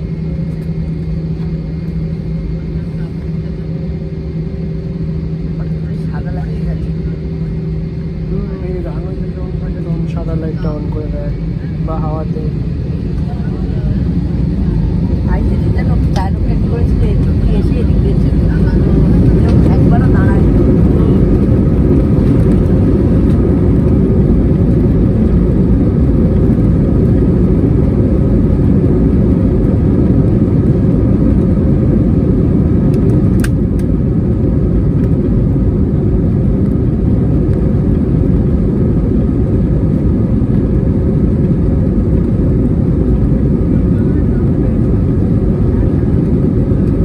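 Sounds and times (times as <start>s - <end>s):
jet engines rumbling: 0.0s - 47.0s
sharp click: 32.9s - 33.9s.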